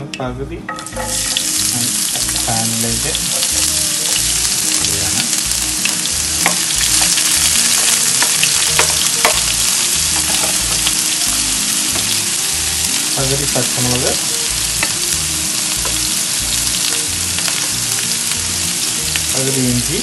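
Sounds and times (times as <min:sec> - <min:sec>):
onion sizzling in hot oil: 0:00.8 - 0:20.0.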